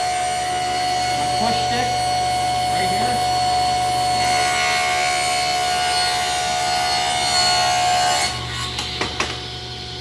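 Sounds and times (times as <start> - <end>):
table saw ripping wood: 3.9 - 9.6.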